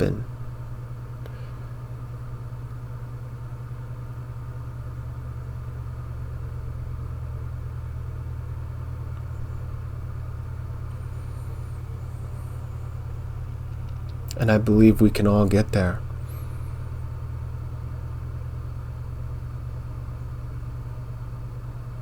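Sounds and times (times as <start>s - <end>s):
low background rumble: 0.0s - 22.0s.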